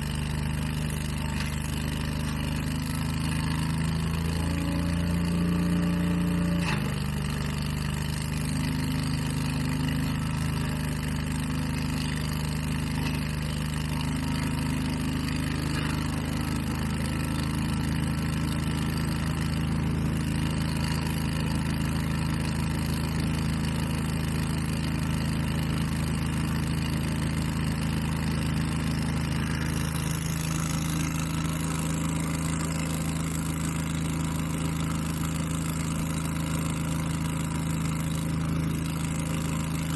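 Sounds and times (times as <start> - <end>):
leaf blower engine running: 0.0 - 23.1, 23.8 - 39.9.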